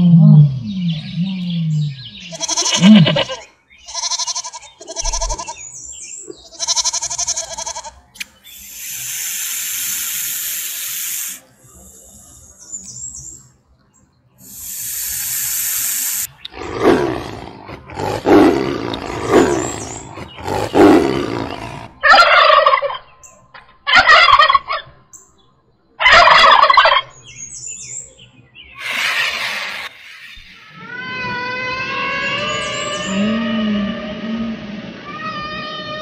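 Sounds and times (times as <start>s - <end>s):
tiger growling: 0.0s - 3.4s, 14.5s - 22.2s
snake hissing: 8.4s - 12.6s, 14.4s - 21.9s, 28.8s - 30.3s.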